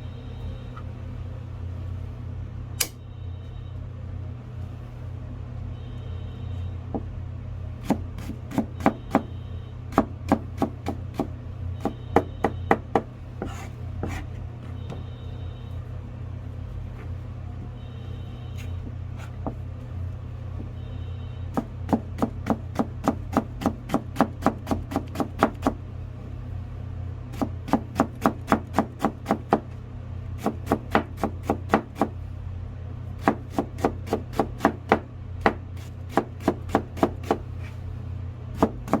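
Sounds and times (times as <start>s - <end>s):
steady low hum: 0.0s - 39.0s
knife chopping on cutting board: 7.8s - 9.3s, 9.9s - 14.3s, 21.6s - 25.8s, 27.3s - 29.7s, 30.4s - 32.2s, 33.2s - 37.8s, 38.6s - 39.0s.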